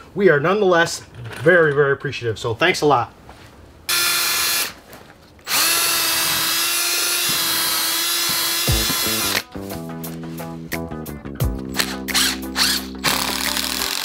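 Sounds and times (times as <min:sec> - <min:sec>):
cordless drill boring into wood: 0:03.9 - 0:04.8, 0:05.5 - 0:09.4, 0:11.8 - 0:14.0.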